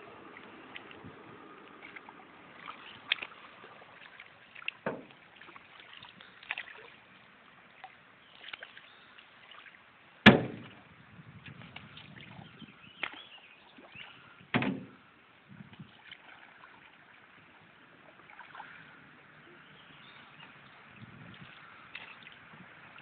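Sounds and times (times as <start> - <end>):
paddle splashing in water: 0.0 - 23.0
light knocks on canoe: 4.8 - 5.2, 10.3 - 10.8, 14.5 - 15.0.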